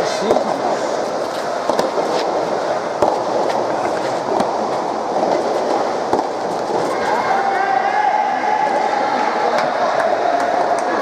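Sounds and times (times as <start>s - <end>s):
murmur of many voices: 0.0s - 11.0s
sharp pops of balls struck: 2.9s - 4.6s.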